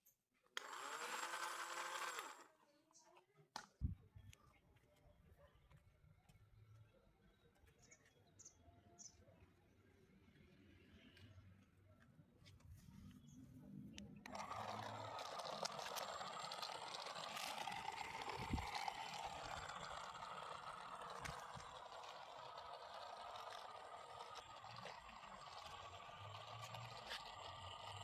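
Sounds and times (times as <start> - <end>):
small motor whine: 0.6 - 2.5, 14.1 - 28.0.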